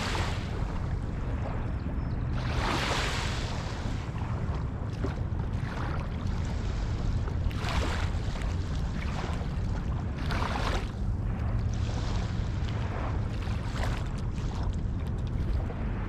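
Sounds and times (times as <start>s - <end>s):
water rushing: 0.0s - 1.1s
wind: 0.0s - 16.0s.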